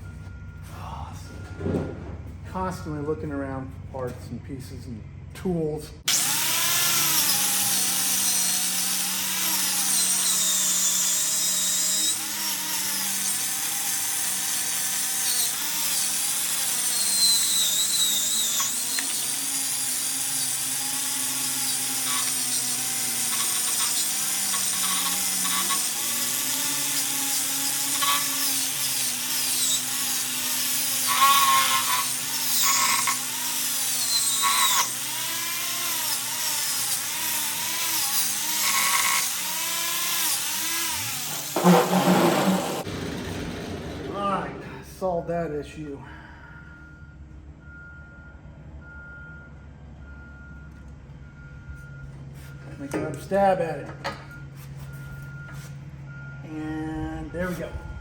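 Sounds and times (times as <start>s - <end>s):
wire wheel grinding metal: 6.1s - 42.9s
harsh scraping: 41.0s - 44.8s.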